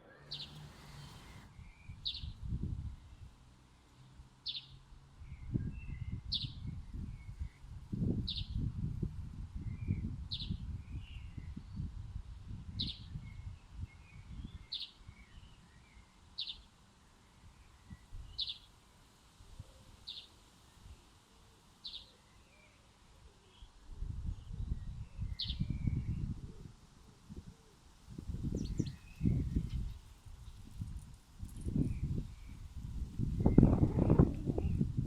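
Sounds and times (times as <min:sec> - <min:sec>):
other birds chirping: 0:00.0 - 0:02.3.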